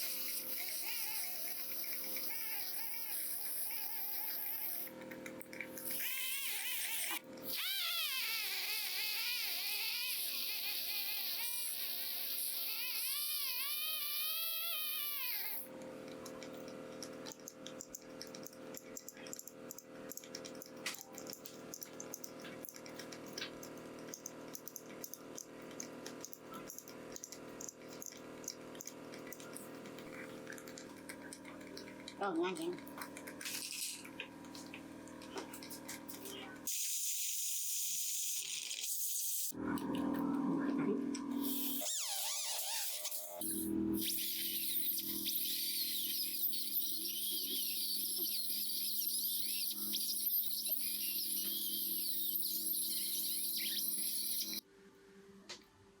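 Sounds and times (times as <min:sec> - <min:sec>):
dental drill whining: 0:00.0 - 0:05.0, 0:05.8 - 0:15.7, 0:36.7 - 0:39.6, 0:41.3 - 0:54.6
small clicks: 0:16.1 - 0:36.4.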